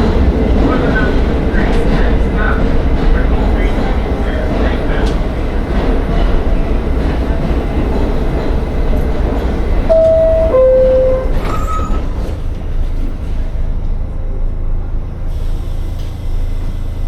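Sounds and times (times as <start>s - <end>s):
subway train rumbling: 0.0s - 17.0s
two-note chime: 9.9s - 11.6s
brief high tone: 9.9s - 12.0s.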